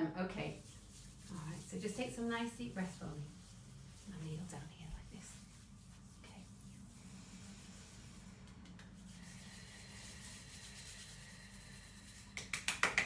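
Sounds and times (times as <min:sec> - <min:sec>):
faint rubbing: 0:00.4 - 0:12.4
fast sharp taps: 0:12.4 - 0:13.0.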